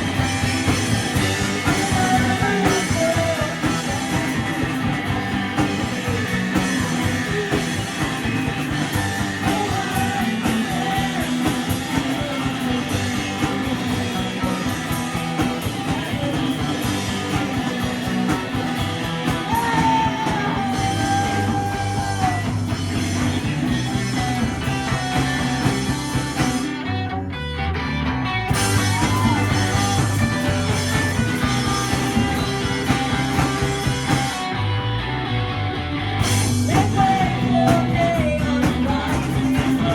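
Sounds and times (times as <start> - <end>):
person singing: 0.0 - 18.6, 19.2 - 26.1, 36.6 - 39.9
drums: 0.0 - 39.9
electric guitar: 0.0 - 39.9.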